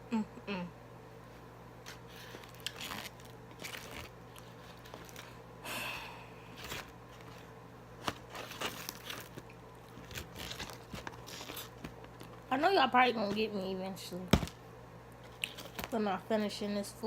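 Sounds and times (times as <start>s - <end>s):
crunching and chewing fried chicken: 1.9s - 5.5s, 6.4s - 12.5s, 15.2s - 15.9s.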